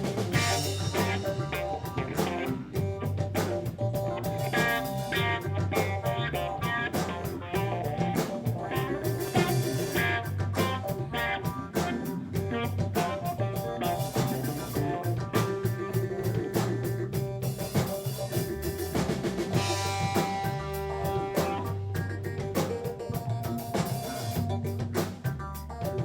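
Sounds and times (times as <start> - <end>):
guitar lines: 0.0 - 16.0, 19.3 - 25.3
bass: 0.0 - 26.0
drum kit beat: 0.0 - 26.0.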